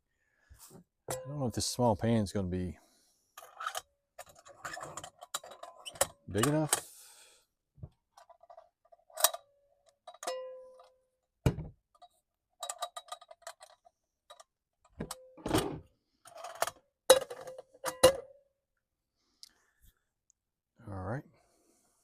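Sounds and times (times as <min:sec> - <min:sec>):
metal cookware clinking: 0:10.1 - 0:10.8.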